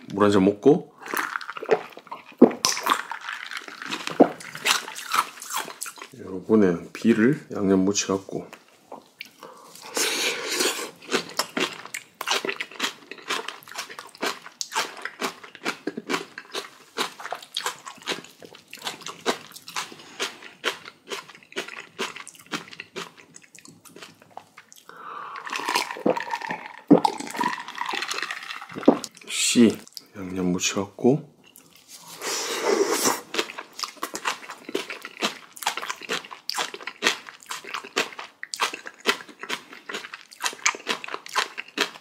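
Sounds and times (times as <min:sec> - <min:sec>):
crunchy chewing: 0:01.0 - 0:06.2, 0:09.2 - 0:29.2, 0:33.1 - 0:42.0
wet mouth clicks: 0:24.7 - 0:28.1.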